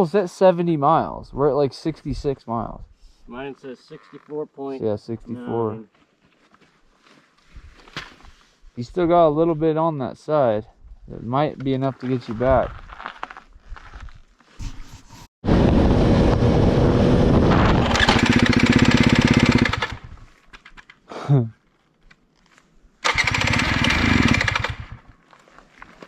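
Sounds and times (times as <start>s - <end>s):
dirt bike engine running: 15.5s - 20.2s, 23.1s - 25.1s.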